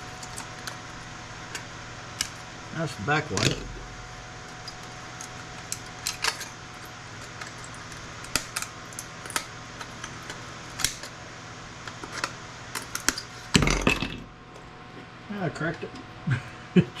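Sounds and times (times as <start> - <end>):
steady low hum: 0.0 - 17.0
plastic parts snapping and clicking: 7.2 - 11.1.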